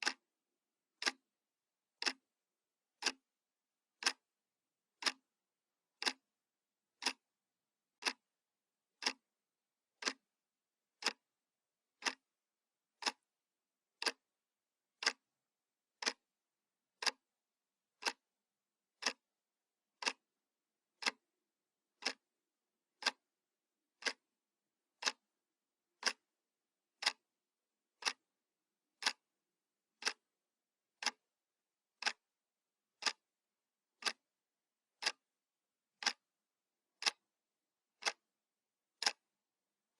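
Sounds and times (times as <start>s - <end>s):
wall clock ticking: 0.0s - 0.2s, 1.0s - 1.2s, 2.0s - 2.3s, 3.0s - 3.2s, 4.0s - 4.3s, 4.9s - 5.3s, 6.0s - 6.3s, 7.0s - 7.3s, 8.0s - 8.3s, 8.9s - 9.3s, 10.0s - 10.3s, 11.0s - 11.3s, 12.0s - 12.3s, 13.0s - 13.3s, 14.0s - 14.3s, 15.0s - 15.3s, 16.0s - 16.2s, 17.0s - 17.3s, 18.0s - 18.3s, 19.0s - 19.3s, 20.0s - 20.3s, 21.0s - 21.3s, 21.9s - 22.3s, 23.0s - 23.3s, 24.0s - 24.3s, 25.0s - 25.3s, 26.0s - 26.3s, 27.0s - 27.3s, 28.0s - 28.3s, 29.0s - 29.3s, 30.0s - 30.3s, 31.0s - 31.3s, 32.0s - 32.3s, 33.0s - 33.4s, 34.0s - 34.3s, 35.0s - 35.3s, 36.0s - 36.3s, 37.0s - 37.3s, 38.0s - 38.3s, 39.0s - 39.3s.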